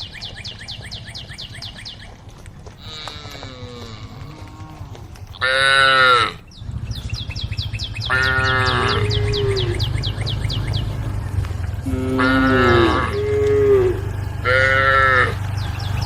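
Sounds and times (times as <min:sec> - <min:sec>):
cattle mooing: 0:02.8 - 0:06.4, 0:08.1 - 0:15.6
high chirps: 0:06.4 - 0:16.0
low rumble: 0:06.4 - 0:16.0.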